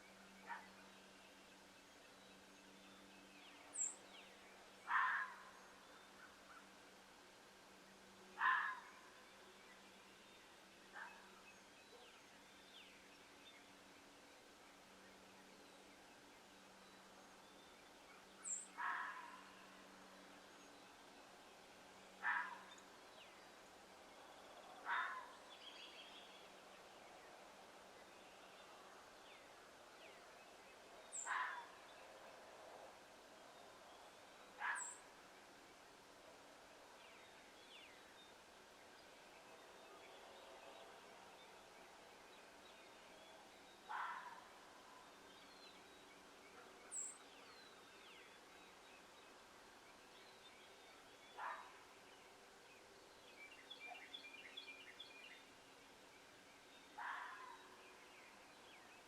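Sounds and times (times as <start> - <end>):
noisy animal calls: 4.9 - 5.4.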